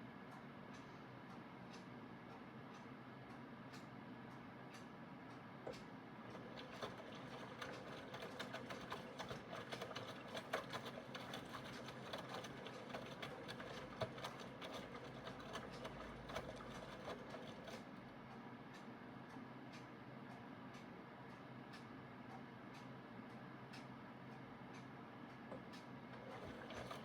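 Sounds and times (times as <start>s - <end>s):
washing machine motor hum: 6.1s - 18.3s, 25.5s - 27.0s
washing machine clicking and rattling: 6.3s - 18.1s, 25.6s - 27.0s.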